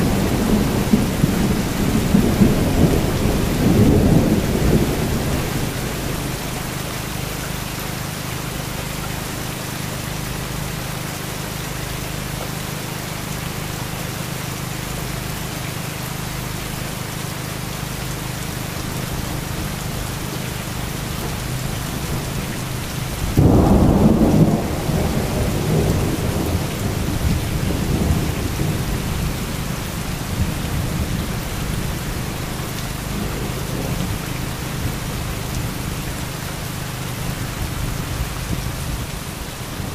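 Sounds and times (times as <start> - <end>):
thunder rumbling: 0.0 - 6.5, 21.2 - 35.9
heavy rain falling: 0.0 - 39.9.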